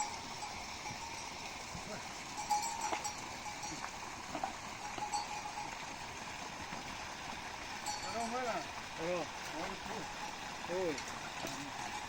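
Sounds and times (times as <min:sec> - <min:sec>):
metal animal bells clinking: 0:00.0 - 0:06.0, 0:07.8 - 0:08.8, 0:09.5 - 0:12.0.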